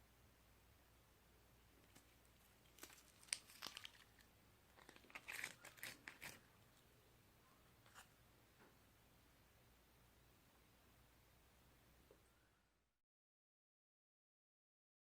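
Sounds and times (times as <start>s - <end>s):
slime crackling and popping: 2.6s - 6.4s.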